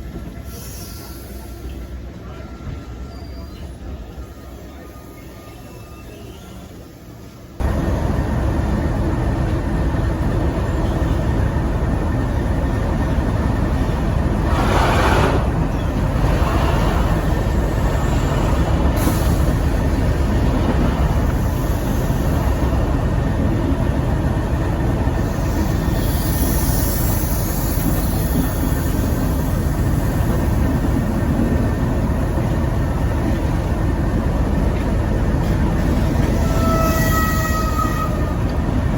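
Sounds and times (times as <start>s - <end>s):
diesel locomotive engine running: 7.6s - 38.9s.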